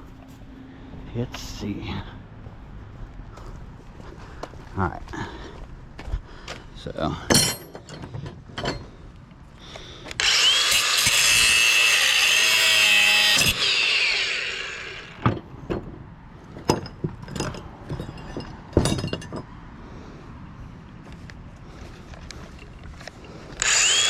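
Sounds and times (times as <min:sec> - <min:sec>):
metallic knocks and clanks: 0:07.3 - 0:09.0, 0:15.2 - 0:19.6
power cutter cutting metal: 0:10.1 - 0:15.2, 0:23.6 - 0:24.0.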